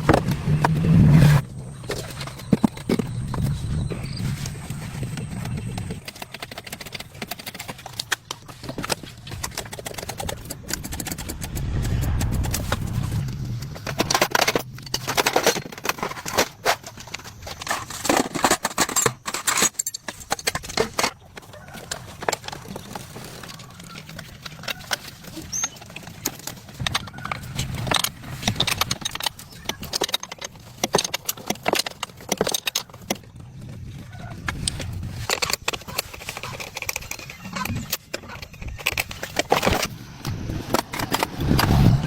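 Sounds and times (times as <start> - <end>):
low hum: 10.4 - 16.5.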